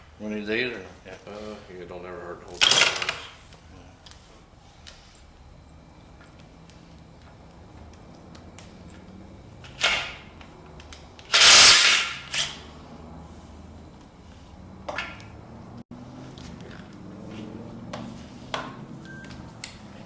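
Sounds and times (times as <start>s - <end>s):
metal tools clanking: 0.0s - 4.0s, 14.8s - 15.5s
loud hissing burst: 11.2s - 14.6s.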